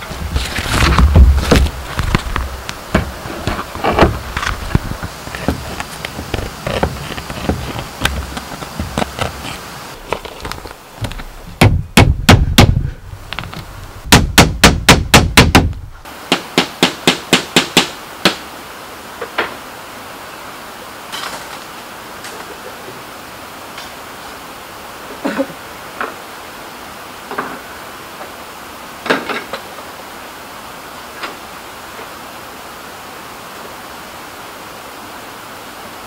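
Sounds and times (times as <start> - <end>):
hammer knocking on bamboo: 11.6 - 12.9, 14.1 - 18.4.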